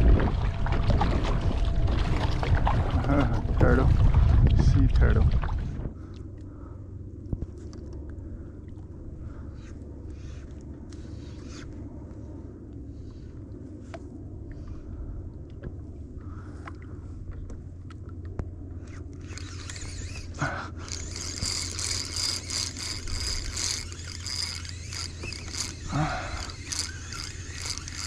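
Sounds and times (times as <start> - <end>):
low hum: 0.0 - 28.0
fishing reel whirring: 18.8 - 28.0.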